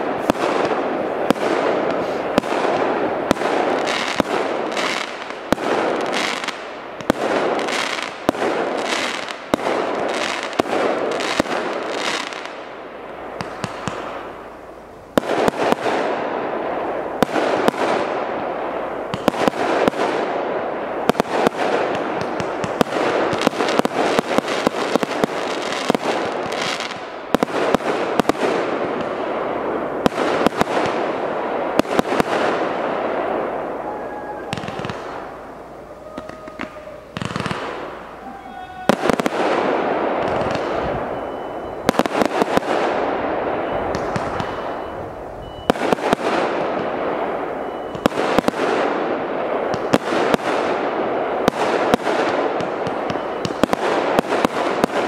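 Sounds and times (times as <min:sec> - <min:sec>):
firework shots and crackling bursts: 0:00.0 - 0:55.0.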